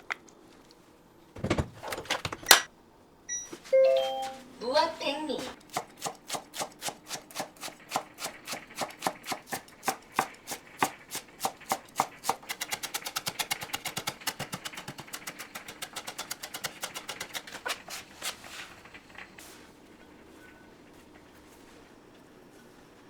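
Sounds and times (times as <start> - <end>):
knife chopping on cutting board: 5.6 - 18.4.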